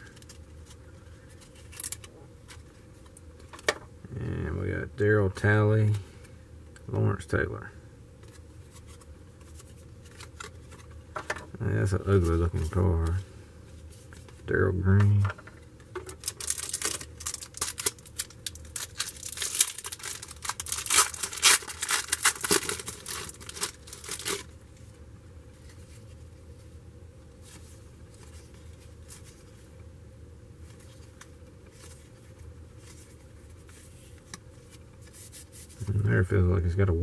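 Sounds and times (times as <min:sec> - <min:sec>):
wrapper tearing and crinkling: 0:01.6 - 0:02.1, 0:16.0 - 0:24.6
cards being handled: 0:08.2 - 0:13.2, 0:13.9 - 0:24.5, 0:30.6 - 0:36.1.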